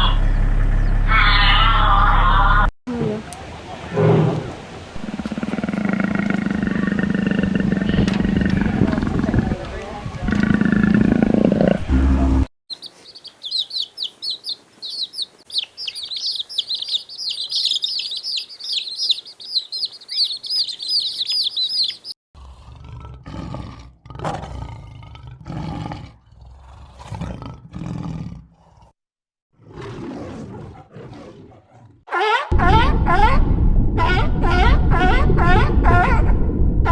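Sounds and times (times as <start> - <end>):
low rough animal calls: 4.0 - 9.6
small birds chirping: 12.7 - 22.2.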